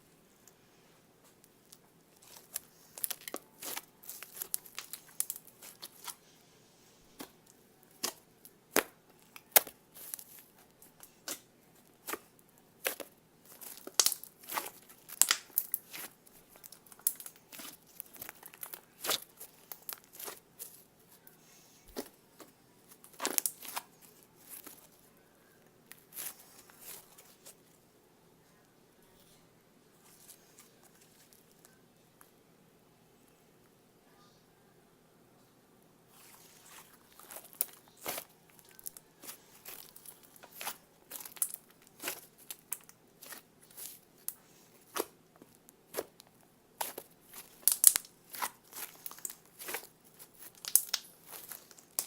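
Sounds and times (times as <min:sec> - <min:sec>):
sticky slime crackles: 0:01.4 - 0:06.3, 0:07.1 - 0:25.2, 0:25.8 - 0:27.6, 0:36.1 - 0:52.0.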